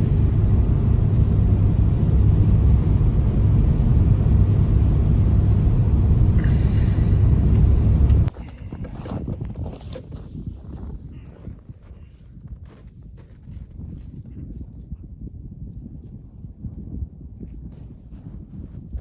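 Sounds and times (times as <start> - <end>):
loud steady low rumble: 0.0 - 9.7.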